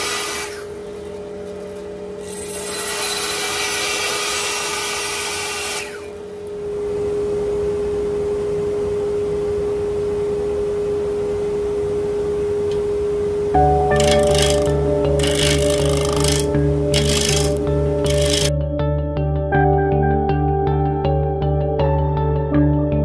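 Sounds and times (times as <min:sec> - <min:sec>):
wood lathe humming: 0:02.2 - 0:06.3, 0:14.0 - 0:18.5
tool rubbing wood: 0:14.0 - 0:18.5
tool scraping wood: 0:14.0 - 0:18.5.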